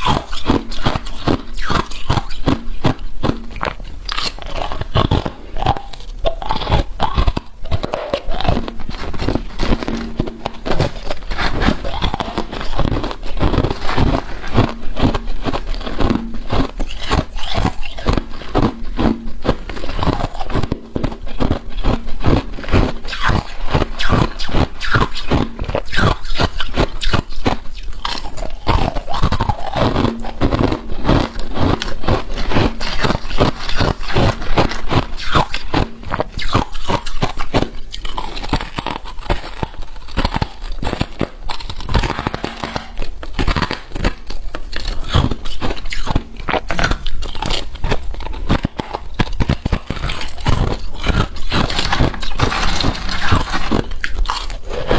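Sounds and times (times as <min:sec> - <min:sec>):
freezer frost crunching and scraping: 0:00.0 - 0:54.9.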